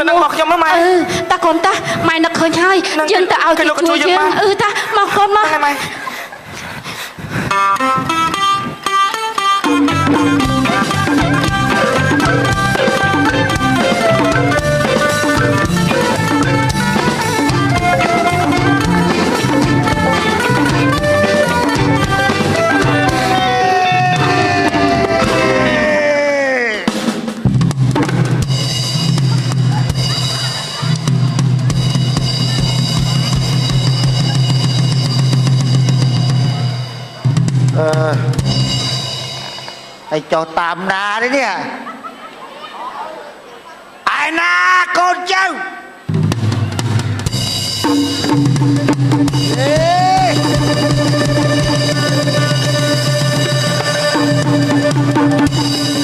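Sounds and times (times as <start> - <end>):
plucked string melody: 7.6 - 23.4, 48.4 - 56.0
steady drum beat: 9.6 - 40.1, 46.1 - 56.0
low bass line: 9.8 - 26.0.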